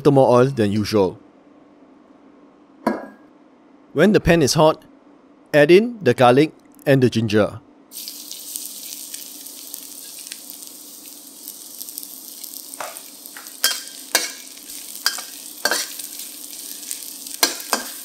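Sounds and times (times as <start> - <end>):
garlic sizzling in hot oil: 7.9 - 18.0
metal spatula scraping a wok: 12.8 - 18.0.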